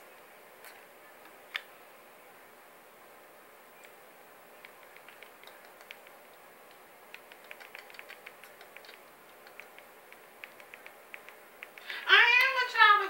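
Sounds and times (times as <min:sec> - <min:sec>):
steady low hiss: 0:00.0 - 0:13.0
faint light clicks: 0:04.6 - 0:12.6.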